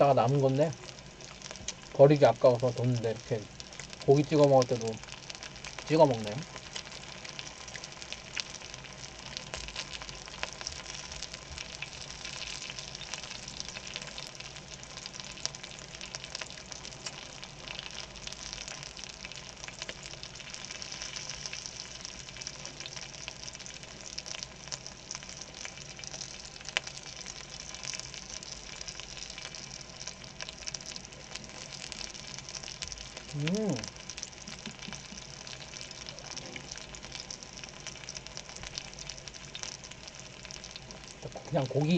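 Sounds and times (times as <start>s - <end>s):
pork sizzling in fat: 0.0s - 41.9s.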